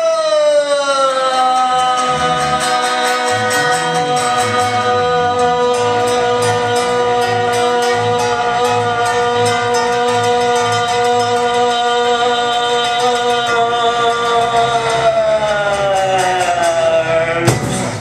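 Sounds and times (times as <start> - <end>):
bass line: 1.7 - 18.0
long held note: 1.8 - 17.6
steady beat: 12.8 - 18.0.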